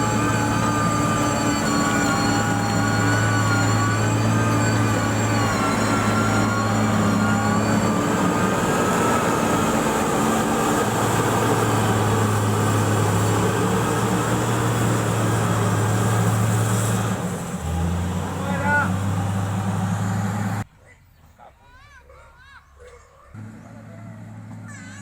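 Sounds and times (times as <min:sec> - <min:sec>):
wavering whine: 0:00.0 - 0:13.5
diesel engine running: 0:00.0 - 0:20.7, 0:23.4 - 0:25.0.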